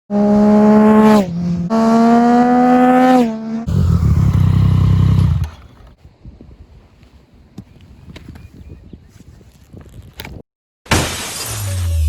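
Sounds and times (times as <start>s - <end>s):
motorcycle engine revving: 0.1s - 5.7s.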